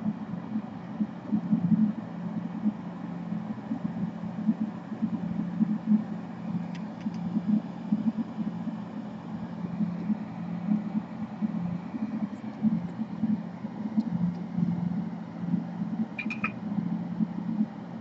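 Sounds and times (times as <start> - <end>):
faint clicks: 6.6 - 7.3.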